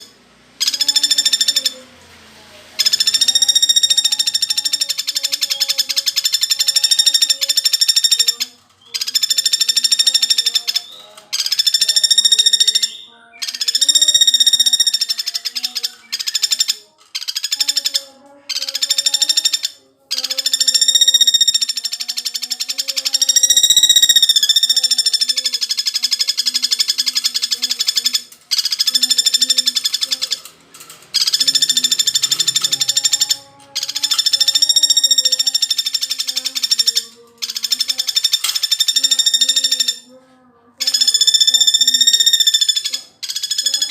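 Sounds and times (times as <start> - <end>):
woodpecker rattling trill: 0.0 - 1.8, 2.8 - 40.2, 40.8 - 43.9.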